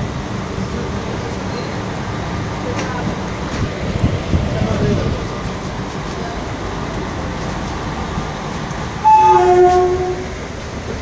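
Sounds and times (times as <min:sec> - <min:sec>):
train running noise: 0:00.0 - 0:11.0
train horn: 0:09.0 - 0:10.4.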